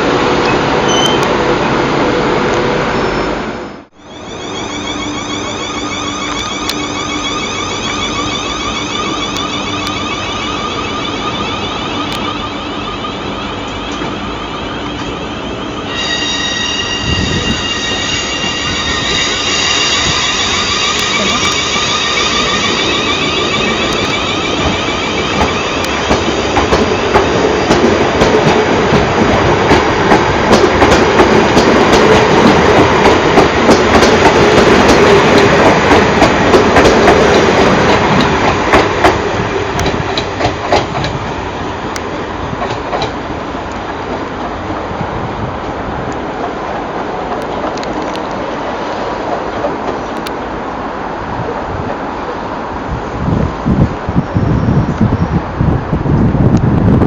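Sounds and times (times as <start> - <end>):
rumble of train wheels: 0.0 - 57.0
train high whine: 0.0 - 57.0
squealing tones: 3.0 - 26.2.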